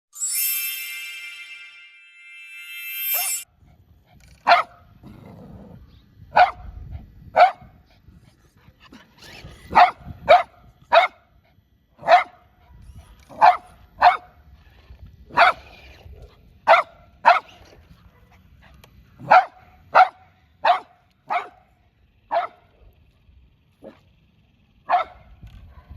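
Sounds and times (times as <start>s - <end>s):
faint low rumble: 3.5s - 25.9s
dog barking: 4.4s - 4.8s, 6.4s - 6.6s, 7.4s - 7.7s, 9.7s - 11.2s, 12.0s - 12.4s, 13.4s - 14.3s, 15.3s - 15.6s, 16.7s - 18.4s, 19.2s - 21.7s, 22.3s - 22.7s, 24.9s - 25.9s.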